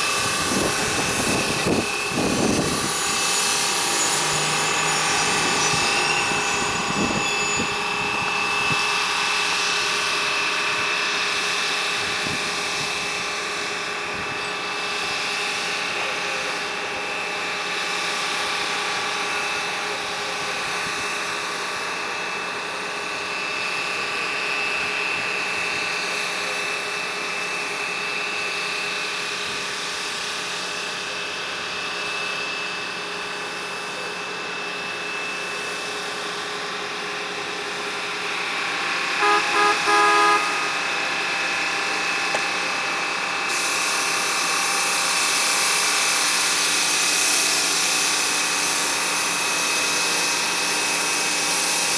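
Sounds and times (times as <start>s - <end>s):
machine engine running: 0.0s - 51.9s
short horn blasts: 39.1s - 41.1s.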